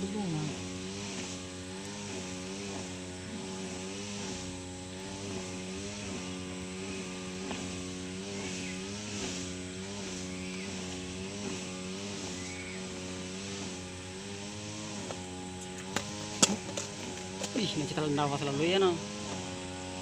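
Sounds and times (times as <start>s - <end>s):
small engine droning: 0.0s - 20.0s.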